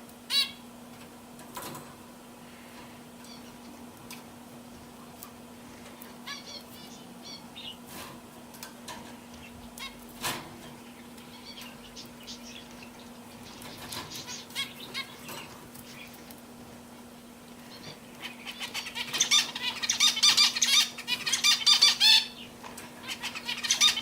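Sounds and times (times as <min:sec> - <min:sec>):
steady low hum: 0:00.0 - 0:24.0
canaries chirping: 0:00.3 - 0:00.6, 0:03.2 - 0:03.6, 0:06.2 - 0:07.9, 0:09.4 - 0:10.0, 0:10.8 - 0:16.2, 0:17.6 - 0:24.0.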